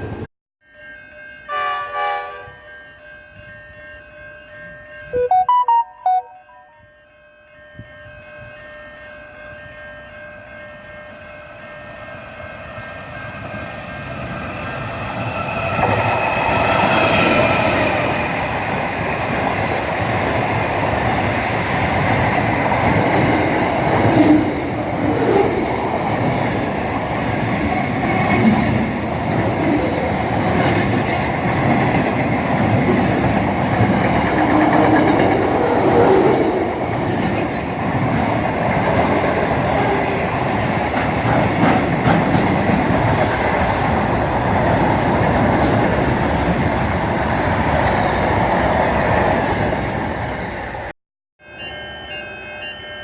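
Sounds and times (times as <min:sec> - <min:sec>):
train passing: 0:00.0 - 0:53.0
wheels clacking over rail joints: 0:26.2 - 0:47.0.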